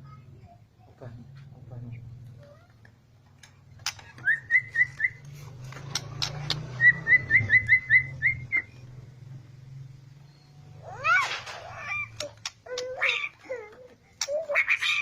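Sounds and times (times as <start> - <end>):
sharp clicks: 5.7 - 6.7, 12.1 - 12.9
rising whistled notes: 6.8 - 8.8.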